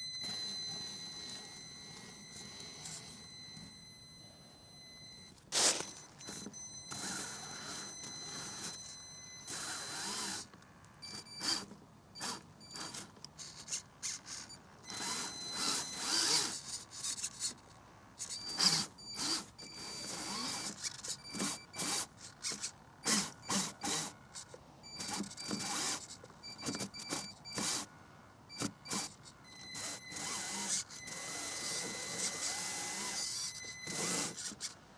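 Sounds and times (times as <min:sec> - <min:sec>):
electric motor whining in bursts: 0:00.0 - 0:17.6, 0:18.2 - 0:27.9, 0:28.5 - 0:34.8.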